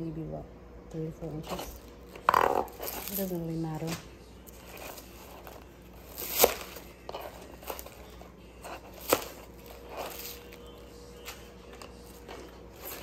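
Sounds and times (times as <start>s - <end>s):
knife crunching onion stalks: 4.6s - 10.7s.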